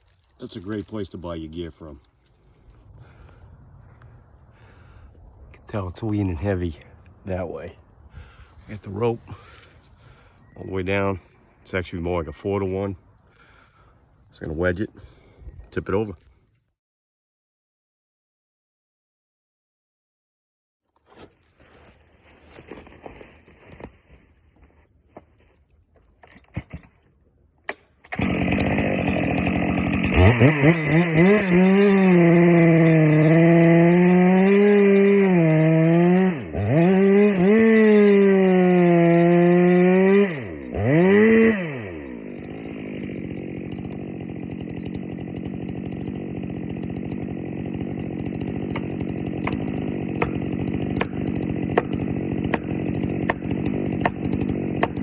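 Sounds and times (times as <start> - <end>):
chainsaw cutting into tree: 27.7 - 55.0.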